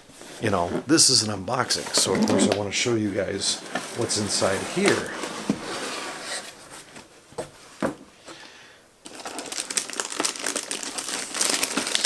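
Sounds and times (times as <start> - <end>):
paper packaging crinkling: 1.9 - 5.5, 9.0 - 12.0.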